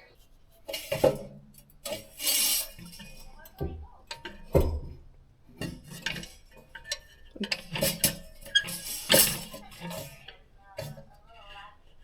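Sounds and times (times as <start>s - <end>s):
metal tools clinking and clanking: 0.7s - 3.5s, 5.6s - 11.0s.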